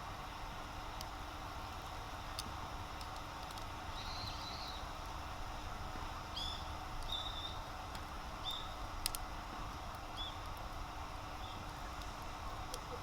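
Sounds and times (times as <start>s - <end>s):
outdoor hiss: 0.0s - 13.0s
small bird chirping: 4.0s - 4.9s, 6.3s - 7.6s, 8.4s - 8.8s, 10.2s - 10.4s, 11.4s - 11.7s.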